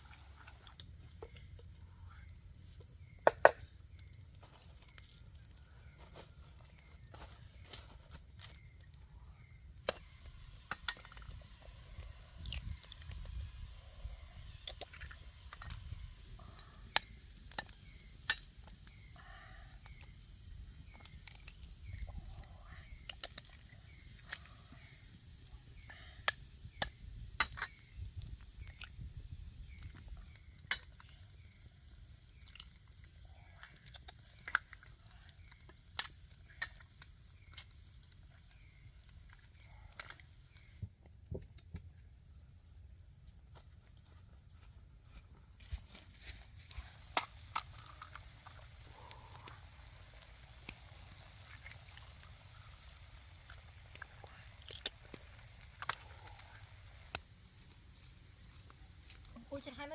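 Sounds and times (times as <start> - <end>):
food sizzling on hot stone: 0.0 - 40.8, 45.6 - 59.9
sharp crackles and pops: 0.0 - 59.9.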